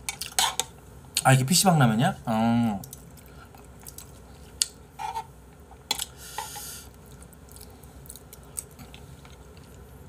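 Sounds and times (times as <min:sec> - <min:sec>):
person chewing: 0:06.0 - 0:09.8.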